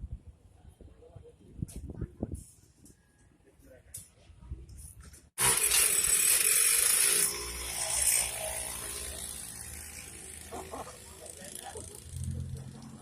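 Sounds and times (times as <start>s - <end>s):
small petrol engine revving: 5.4s - 13.0s.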